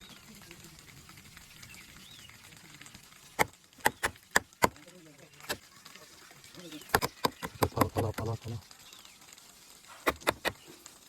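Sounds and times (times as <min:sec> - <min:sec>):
wood snapping cuts: 0:03.4 - 0:04.8, 0:06.9 - 0:08.6, 0:10.0 - 0:10.6.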